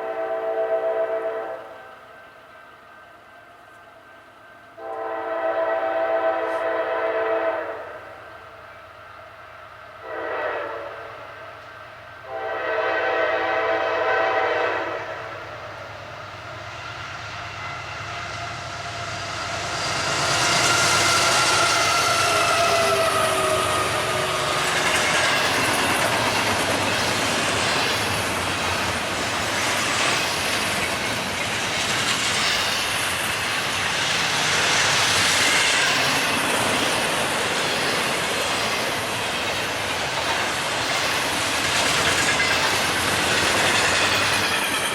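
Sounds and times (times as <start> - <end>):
train horn blasts: 0.0 - 2.1, 4.7 - 8.4, 10.0 - 11.4, 12.2 - 15.6, 20.6 - 25.6
train cars clickety-clack: 16.0 - 44.9.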